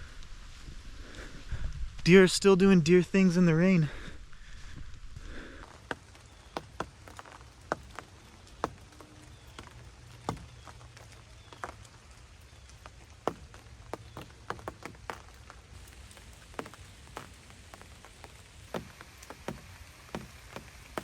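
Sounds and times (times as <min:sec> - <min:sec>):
rain hiss: 0:00.0 - 0:21.0
raindrops ticking on fabric blind: 0:05.4 - 0:21.0.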